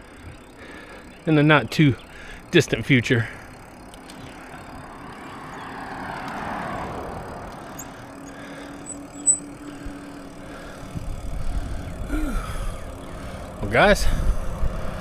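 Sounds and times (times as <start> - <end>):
bicycle tyre noise: 0.0 - 15.0
vehicle passing: 0.0 - 15.0.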